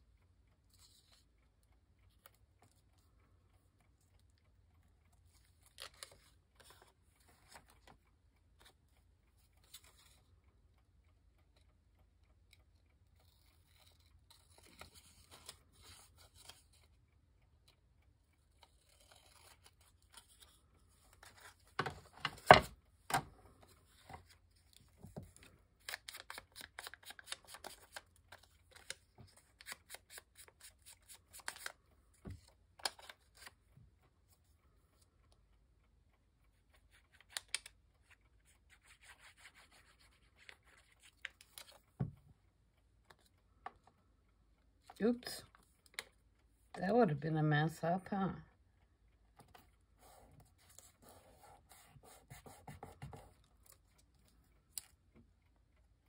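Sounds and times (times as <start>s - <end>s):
paper rustling and snipping: 18.7s - 23.3s, 23.9s - 33.6s.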